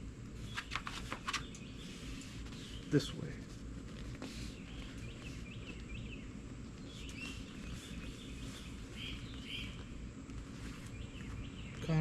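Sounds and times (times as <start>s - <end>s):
bird chirps: 4.4s - 10.0s.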